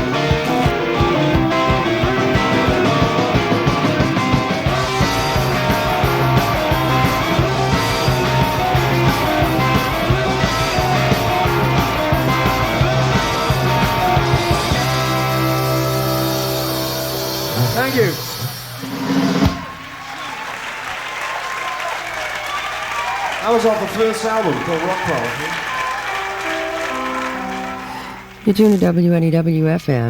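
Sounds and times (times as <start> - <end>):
electric bass: 0.0 - 19.6
drums on a steady beat: 0.0 - 19.9
electric guitars: 0.0 - 19.9, 22.9 - 29.0.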